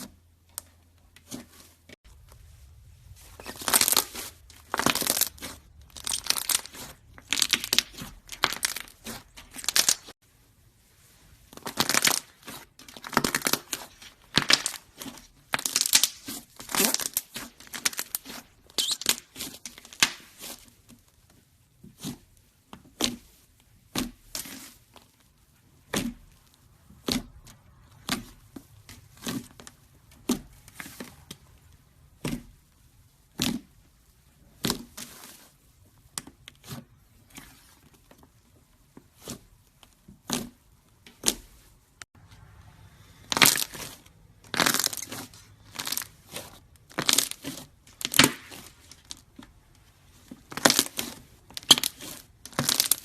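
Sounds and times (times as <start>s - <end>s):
dry clay cracking: 3.4s - 10.2s, 11.5s - 20.5s, 42.9s - 53.0s.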